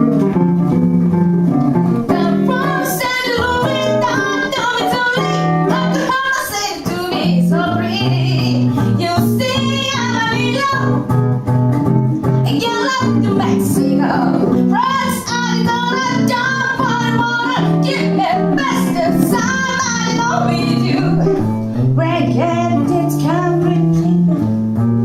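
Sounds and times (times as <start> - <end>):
guitar accompaniment: 0.0 - 25.0
woman singing: 2.1 - 11.1, 12.4 - 24.4.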